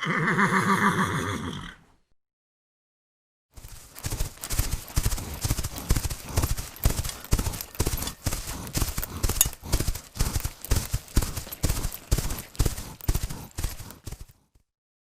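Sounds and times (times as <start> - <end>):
horse hooves clip-clopping: 3.6 - 14.6.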